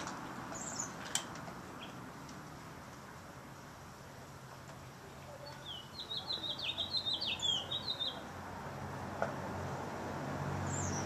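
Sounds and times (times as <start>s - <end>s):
songbird singing: 0.0s - 2.3s, 4.5s - 8.6s, 10.6s - 11.0s.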